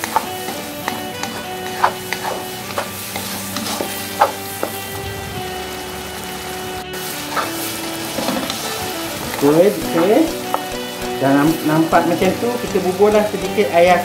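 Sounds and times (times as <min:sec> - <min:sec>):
wooden spatula scraping a pan: 0:00.0 - 0:04.8, 0:07.1 - 0:08.8
chili paste sizzling in oil: 0:00.0 - 0:14.0.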